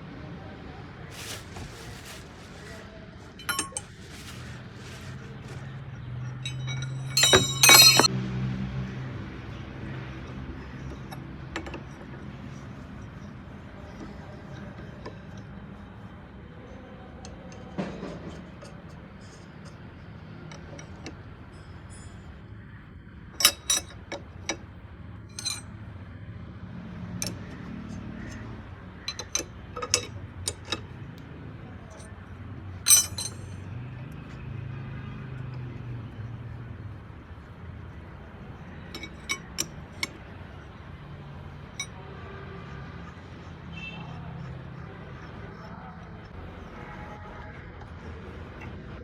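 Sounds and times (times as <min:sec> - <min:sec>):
metal tools clinking: 0:01.1 - 0:08.1, 0:23.4 - 0:24.6, 0:25.3 - 0:25.8, 0:29.0 - 0:31.0, 0:32.9 - 0:33.7, 0:38.8 - 0:40.2.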